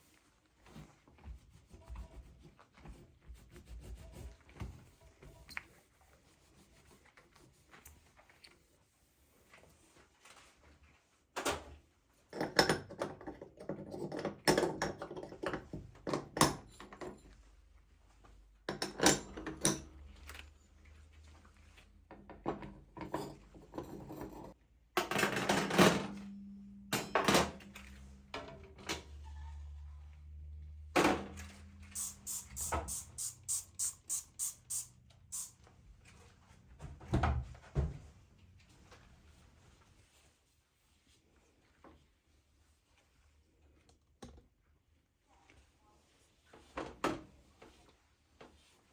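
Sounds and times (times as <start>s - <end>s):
dishes and cupboards clattering: 12.4s - 17.4s, 18.7s - 20.1s, 22.2s - 26.2s
low steady hum: 25.7s - 34.8s.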